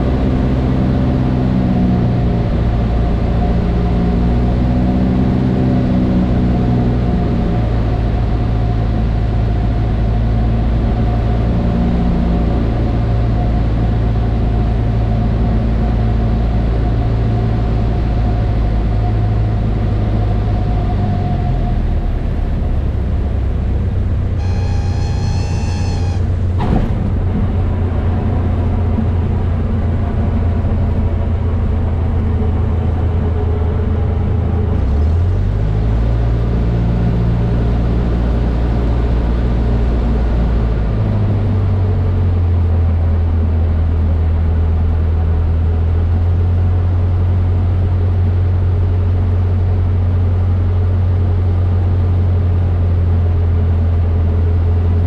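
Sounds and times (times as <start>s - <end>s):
light aircraft engine running: 0.0s - 55.0s
brief high tone: 24.4s - 26.6s.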